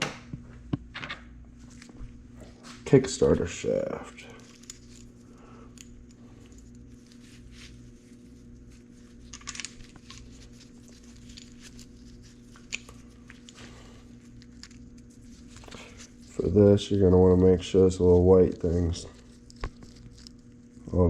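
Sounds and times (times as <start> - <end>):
steady low hum: 0.0 - 21.0
metal parts clicking and knocking: 9.2 - 10.2.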